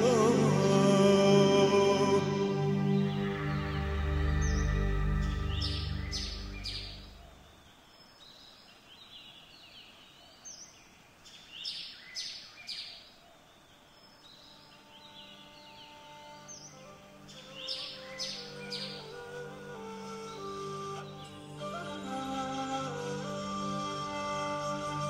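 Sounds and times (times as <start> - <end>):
background music: 0.0 - 7.4, 14.7 - 25.0
quiet outdoor ambience: 0.0 - 25.0
bird chirps: 2.4 - 23.0.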